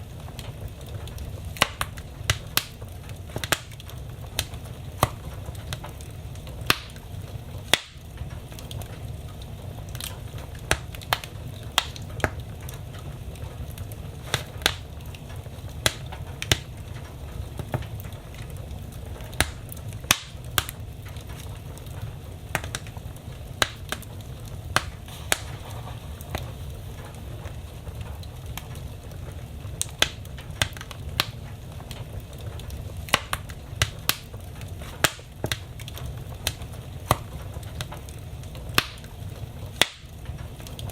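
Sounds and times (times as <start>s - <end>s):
fire crackling and popping: 0.0s - 40.9s
low rumble of flames: 0.0s - 40.9s.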